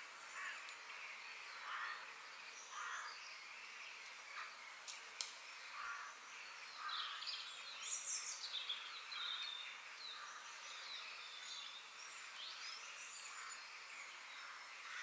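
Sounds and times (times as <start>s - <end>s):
faint background hiss: 0.0s - 15.0s.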